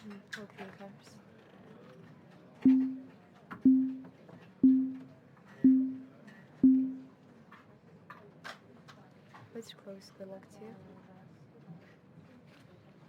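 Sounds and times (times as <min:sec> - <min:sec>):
short low-pitched beeps: 0:02.7 - 0:03.1, 0:03.7 - 0:07.1.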